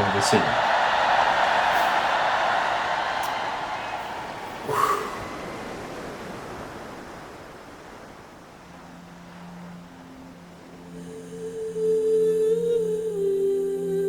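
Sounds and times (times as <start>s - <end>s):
ocean waves washing: 0.0s - 13.8s
low sustained humming tone: 7.1s - 14.0s.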